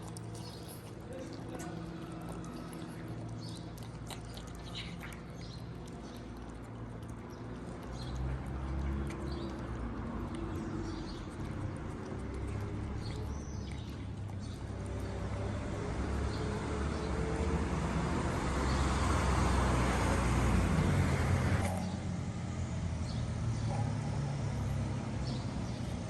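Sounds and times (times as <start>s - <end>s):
low steady traffic rumble: 0.0s - 26.0s
vehicle passing: 7.4s - 26.0s.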